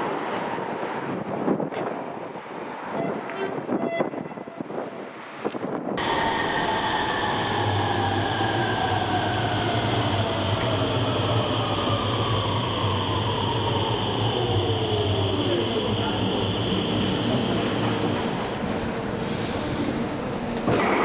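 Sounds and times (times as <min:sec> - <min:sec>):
traction motor whine: 0:06.0 - 0:18.7
low hum and rail noise: 0:06.0 - 0:21.0.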